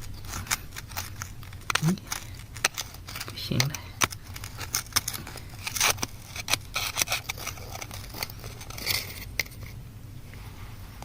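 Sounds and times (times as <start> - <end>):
hand tool scraping rock: 0.2 - 9.7.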